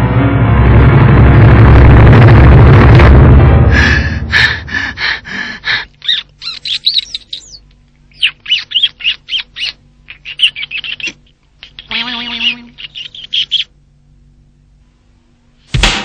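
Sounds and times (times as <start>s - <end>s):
bird chirping: 6.0s - 13.7s.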